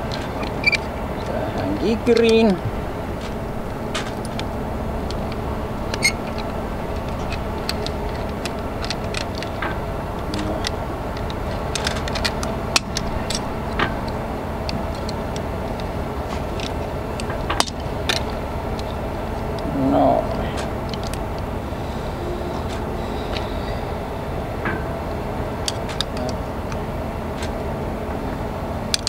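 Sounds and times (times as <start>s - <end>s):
metallic clicks and rattles: 0.0s - 19.7s, 24.6s - 27.6s
steady background noise: 0.0s - 29.0s.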